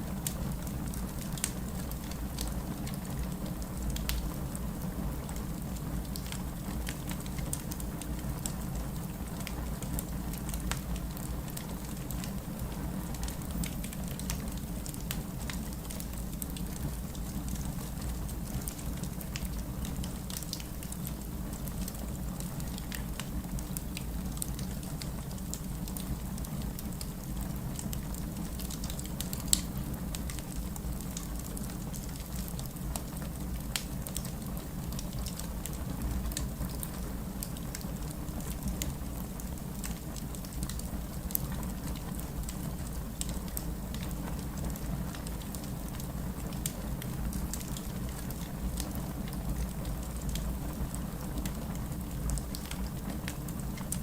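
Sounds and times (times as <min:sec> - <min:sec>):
fireplace crackling and popping: 0:00.0 - 0:54.0
steady rain: 0:00.0 - 0:54.0.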